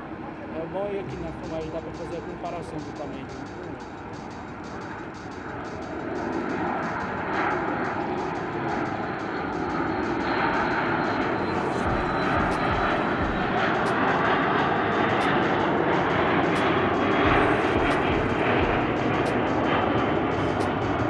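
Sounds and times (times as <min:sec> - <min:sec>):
jet engine rumble with whine: 0:01.0 - 0:21.0.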